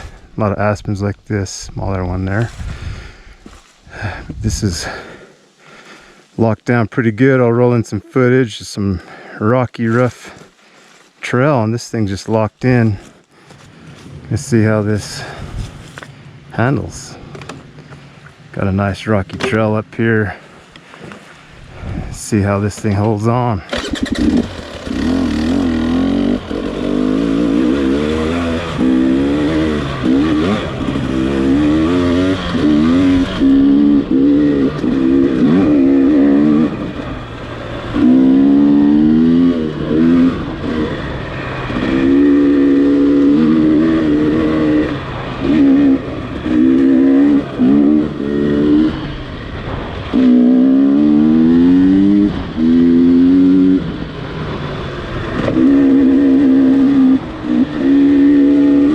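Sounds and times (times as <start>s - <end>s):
dirt bike engine revving: 22.4s - 58.9s.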